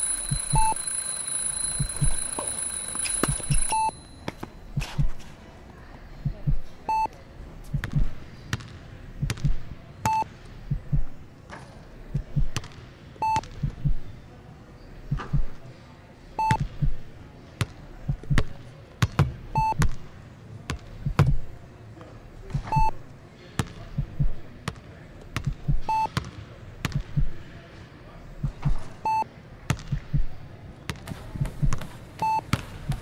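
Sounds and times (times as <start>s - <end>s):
short high monitor beep: 0.0s - 4.2s.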